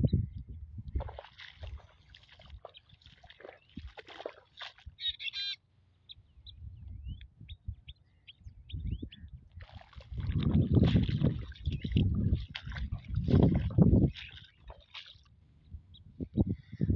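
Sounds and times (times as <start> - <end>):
wind rumble on microphone: 0.0 - 2.7, 6.4 - 16.9
harsh buzzy bird call: 5.0 - 5.6.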